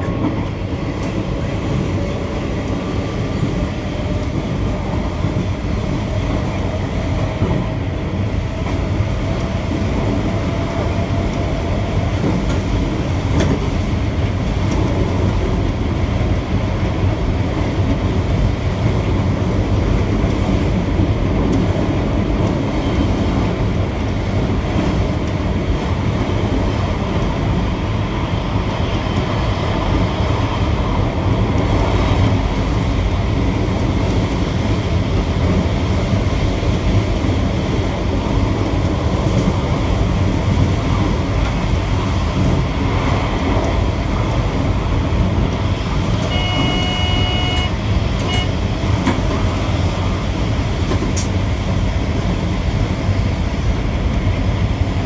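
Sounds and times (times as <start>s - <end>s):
train wheels rumbling on rails: 0.0s - 55.0s
short electronic beep: 46.3s - 48.5s.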